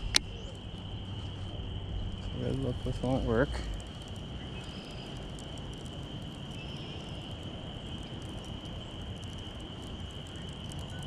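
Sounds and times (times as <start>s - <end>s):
low wind-like rumble: 0.0s - 11.0s
high-pitched chirring animal chorus: 2.4s - 9.1s.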